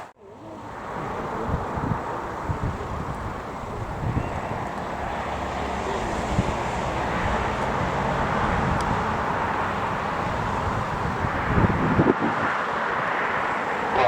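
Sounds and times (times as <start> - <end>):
wind buffeting microphone: 0.9 - 14.0.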